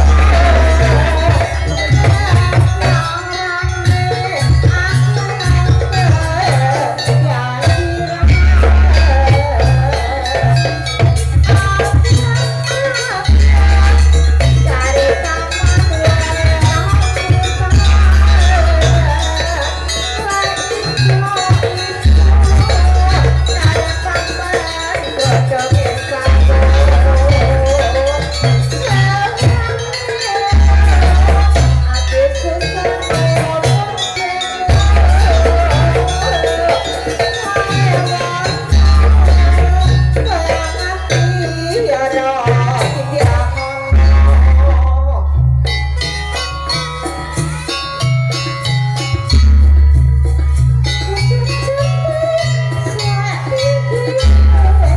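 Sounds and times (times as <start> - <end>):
deep bass tones: 0.0 - 1.6
dense percussion and rattling: 0.0 - 54.9
wavering melody line: 0.0 - 54.9.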